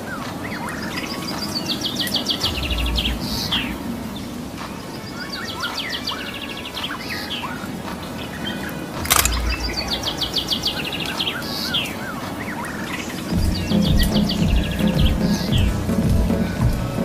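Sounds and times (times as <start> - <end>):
small birds singing: 0.0 - 17.0.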